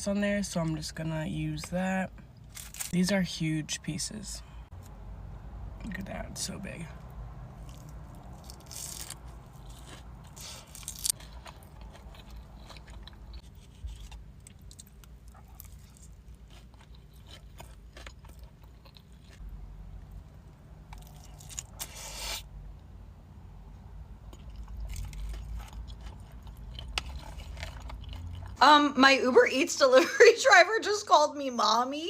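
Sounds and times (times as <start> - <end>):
crunchy chewing: 7.5 - 20.3, 20.9 - 22.4, 24.2 - 28.6.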